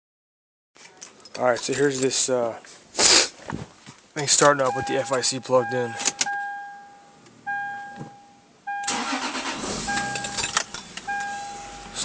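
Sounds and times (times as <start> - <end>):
electronic warning tone: 4.7 - 10.5, 11.1 - 12.0
car engine starting: 7.6 - 12.0.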